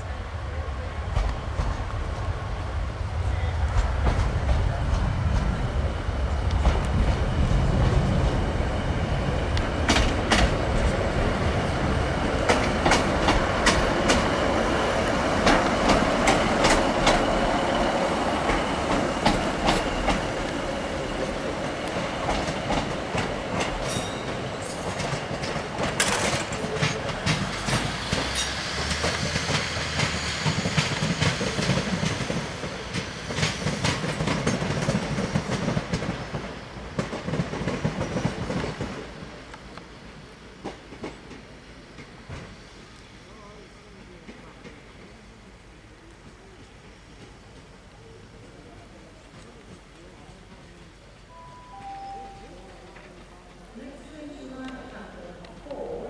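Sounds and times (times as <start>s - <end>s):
wheels clacking over rail joints: 9.5s - 39.5s.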